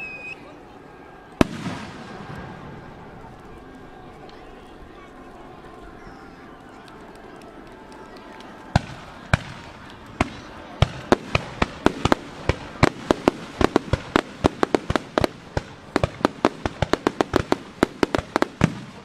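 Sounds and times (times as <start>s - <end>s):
fireworks bangs: 1.2s - 4.6s, 7.1s - 19.0s.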